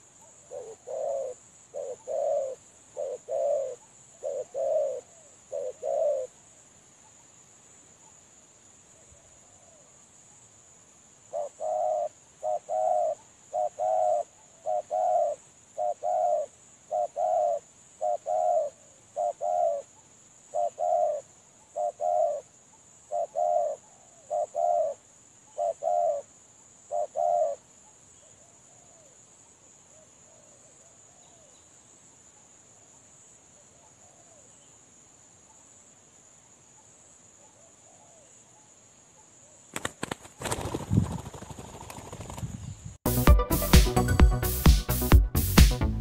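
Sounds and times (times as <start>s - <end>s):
high insect drone: 0.0s - 43.6s
dove cooing: 0.4s - 6.4s, 11.3s - 19.9s, 20.5s - 22.5s, 23.1s - 25.0s, 25.6s - 26.3s, 26.9s - 27.6s.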